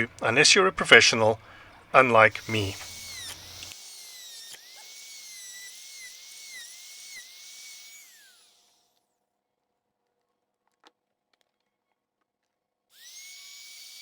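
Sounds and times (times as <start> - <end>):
router whining: 0.0 - 9.2, 12.9 - 14.0.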